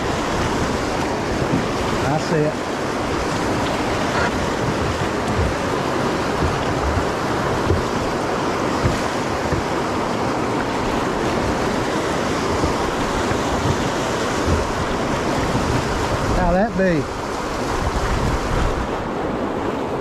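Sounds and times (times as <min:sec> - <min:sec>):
river water rushing: 0:00.0 - 0:20.0
wind buffeting microphone: 0:00.0 - 0:20.0.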